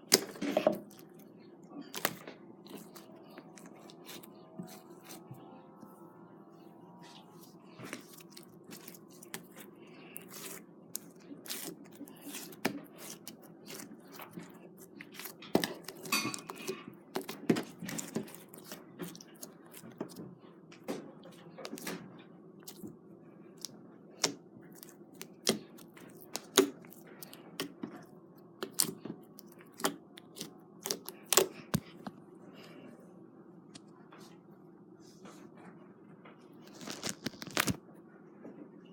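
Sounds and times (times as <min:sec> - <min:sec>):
low hum: 0:00.3 - 0:17.4.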